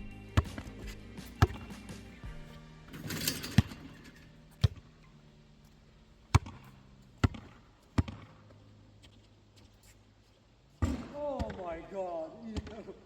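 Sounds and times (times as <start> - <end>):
basketball bouncing on hard court: 0.4 - 1.8, 4.6 - 4.8, 6.3 - 9.2, 10.8 - 11.7, 12.6 - 12.9.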